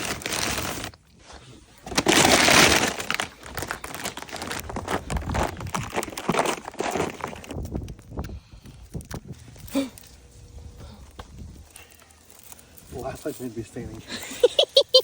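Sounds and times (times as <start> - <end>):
ice crackling and breaking: 0.0 - 1.0, 1.8 - 8.2
crunching crackles: 0.0 - 14.7.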